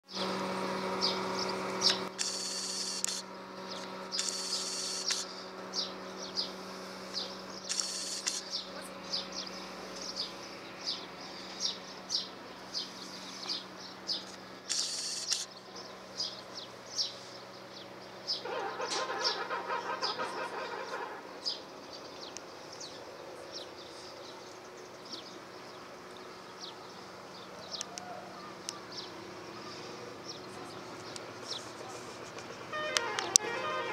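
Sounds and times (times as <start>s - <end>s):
rough buzzing: 0.1s - 11.6s, 14.6s - 15.5s, 32.7s - 33.9s
boat engine hum: 0.1s - 33.9s
small birds chirping: 1.0s - 19.4s, 20.0s - 33.4s.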